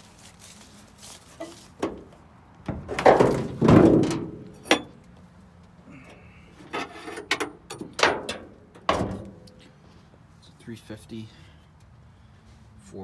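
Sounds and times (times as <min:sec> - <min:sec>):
hood creaking open: 0:01.2 - 0:05.0, 0:06.0 - 0:09.6
truck hood knocks: 0:02.7 - 0:04.4.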